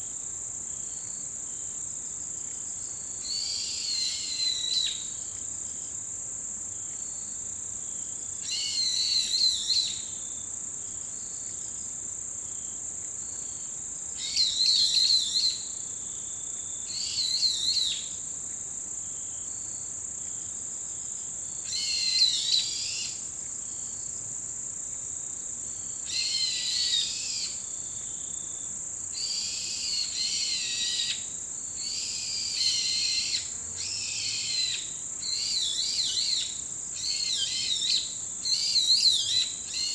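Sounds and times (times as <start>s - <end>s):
insects trilling: 21.1s - 39.9s.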